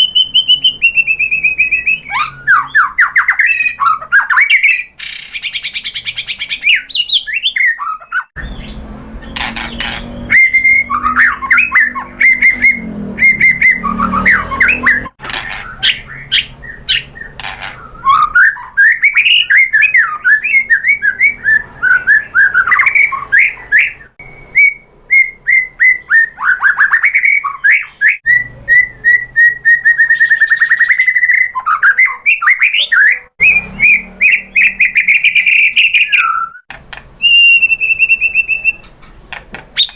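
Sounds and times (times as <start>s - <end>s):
bird singing whistled song: 0.0s - 39.0s
low rumbling noise: 8.4s - 18.1s.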